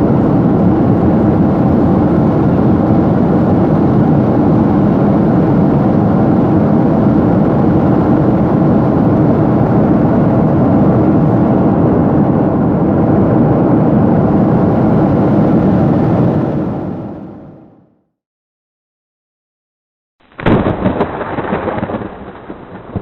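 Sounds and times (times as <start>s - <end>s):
jet airliner cabin noise: 0.0s - 17.9s.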